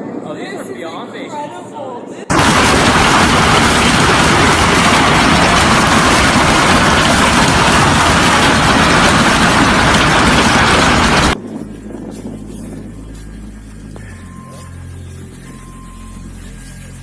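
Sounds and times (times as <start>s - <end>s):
hail pounding down: 2.3s - 11.4s
low hum: 2.3s - 17.0s.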